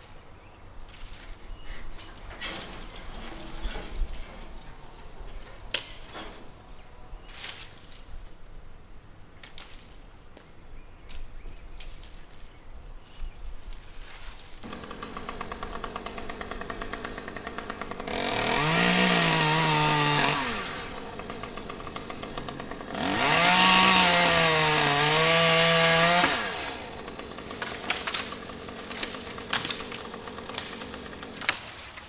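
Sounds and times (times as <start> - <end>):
chainsaw idling and revving: 14.6 - 32.0.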